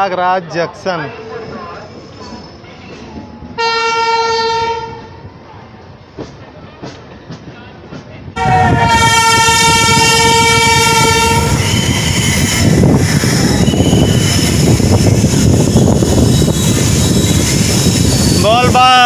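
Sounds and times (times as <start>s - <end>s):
train rumbling and rattling: 0.0s - 19.0s
train horn: 3.6s - 5.2s, 8.4s - 12.2s
high squeals: 11.0s - 19.0s.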